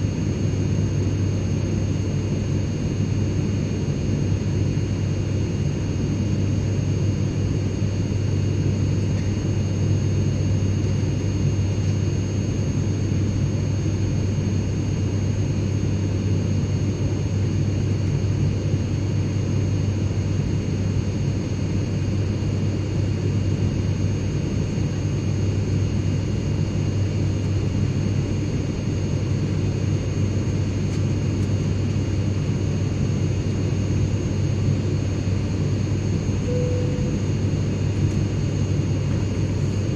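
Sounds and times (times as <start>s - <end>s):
airplane engine rumble: 0.0s - 39.9s
faint high-pitched tones: 36.5s - 37.4s.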